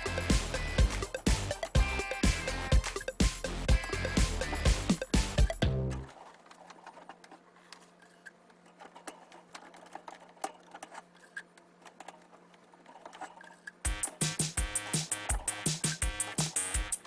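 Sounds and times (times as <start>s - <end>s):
background music: 0.0s - 6.1s, 13.9s - 17.0s.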